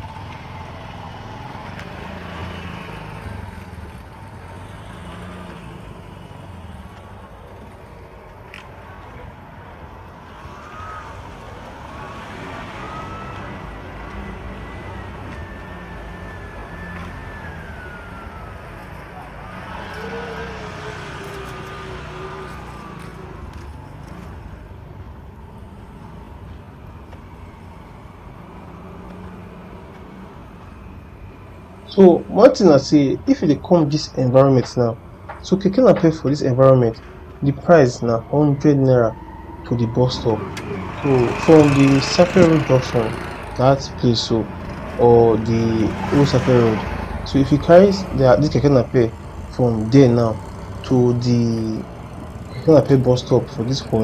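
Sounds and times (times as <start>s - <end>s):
motor vehicle engine rumble: 0.0s - 54.0s
vehicle engine running: 39.6s - 54.0s.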